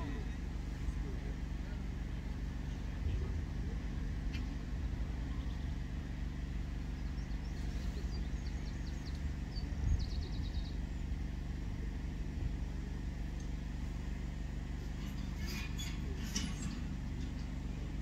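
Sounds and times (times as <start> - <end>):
low outdoor rumble: 0.0 - 18.0
small bird twittering: 7.0 - 11.0.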